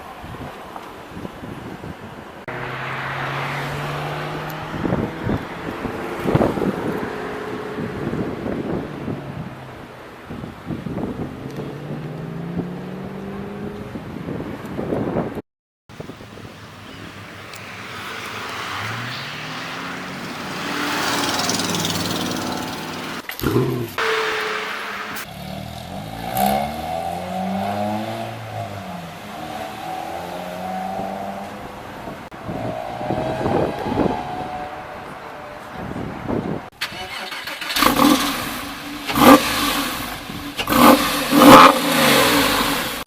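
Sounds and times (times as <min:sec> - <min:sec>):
road and wind noise: 0:00.0 - 0:43.0
car engine accelerating: 0:02.5 - 0:09.9, 0:17.4 - 0:35.8, 0:37.4 - 0:43.0
car engine running and surging: 0:02.5 - 0:14.2, 0:16.0 - 0:23.3, 0:24.0 - 0:25.4.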